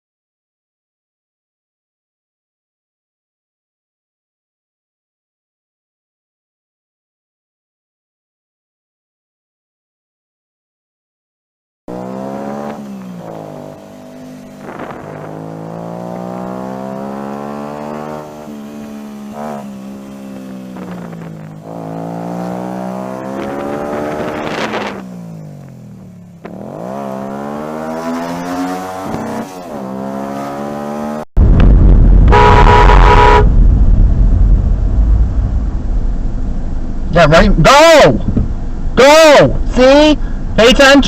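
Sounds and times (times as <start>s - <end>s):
vehicle engine accelerating: 11.9s - 31.3s, 32.3s - 39.0s
loud horn blast: 32.3s - 33.6s.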